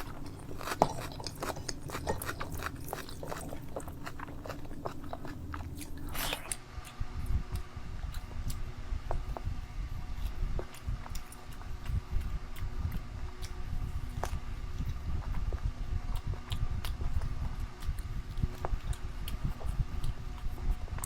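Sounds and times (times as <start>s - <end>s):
close chewing and mouth smacks: 0.0s - 21.0s.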